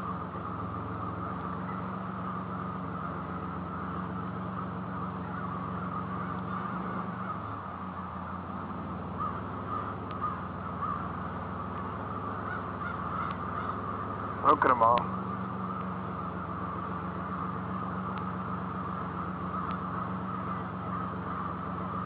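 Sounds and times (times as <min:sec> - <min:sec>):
flock of crows cawing: 0:00.0 - 0:22.0
steady low hum: 0:00.0 - 0:22.0.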